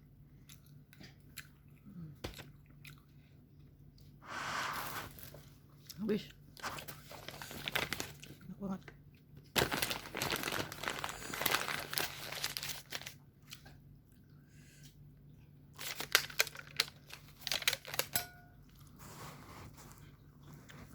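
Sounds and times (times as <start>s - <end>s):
food wrapping crumpling: 6.6s - 8.4s, 9.5s - 13.7s, 15.8s - 20.9s.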